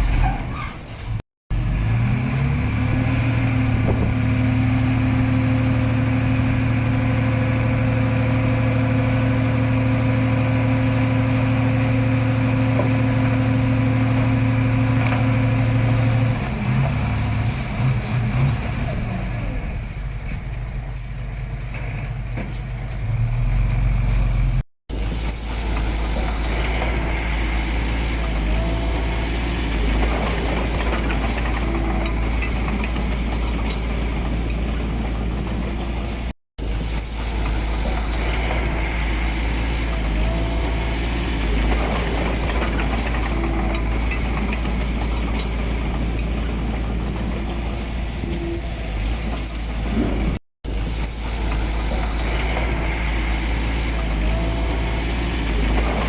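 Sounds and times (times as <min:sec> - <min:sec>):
heavy diesel engine running: 0:01.1 - 0:56.0.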